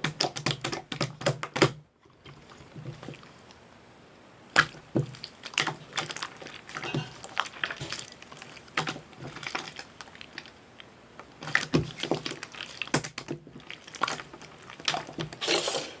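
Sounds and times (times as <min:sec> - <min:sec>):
slime squelching: 0:04.4 - 0:16.0.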